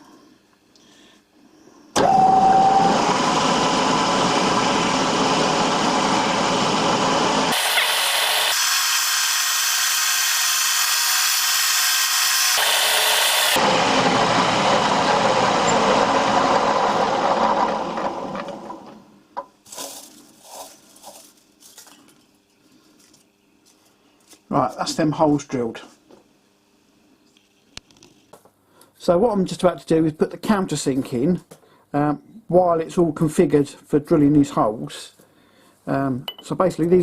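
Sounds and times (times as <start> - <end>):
milling machine drilling metal: 2.0 - 18.5.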